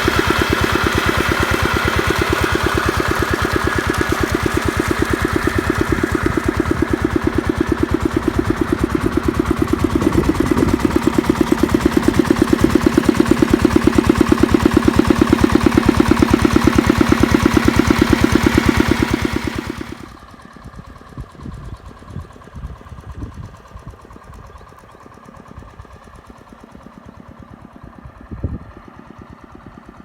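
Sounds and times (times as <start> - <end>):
small diesel engine running: 0.0 - 30.0.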